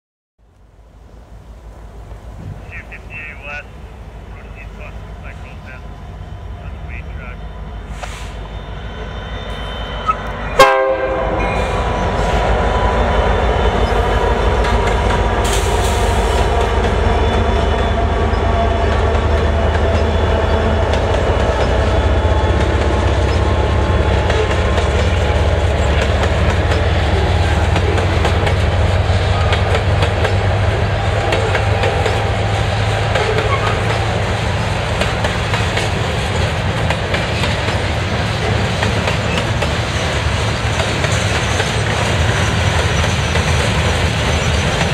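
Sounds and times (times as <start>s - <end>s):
diesel locomotive rumble: 0.4s - 44.9s
train horn: 7.0s - 14.4s
wheels clicking over rail joints: 18.3s - 44.9s.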